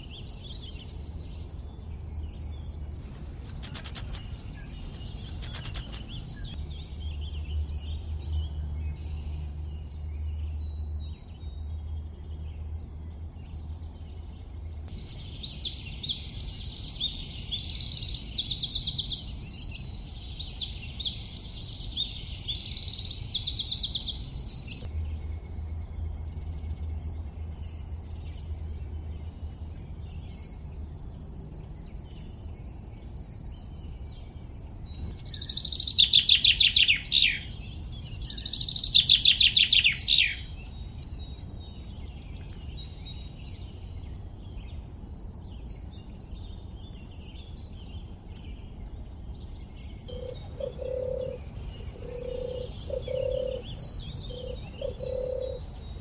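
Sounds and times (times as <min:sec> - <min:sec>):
birds singing: 0:00.0 - 0:56.0
loud fast bird trills: 0:03.0 - 0:06.6, 0:50.1 - 0:56.0
low repeating bird call: 0:03.0 - 0:06.6, 0:50.1 - 0:56.0.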